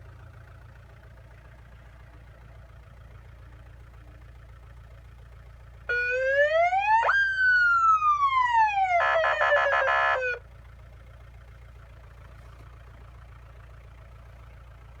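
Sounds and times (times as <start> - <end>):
low engine idle hum: 0.0 - 15.0
electronic siren wailing: 5.9 - 10.4.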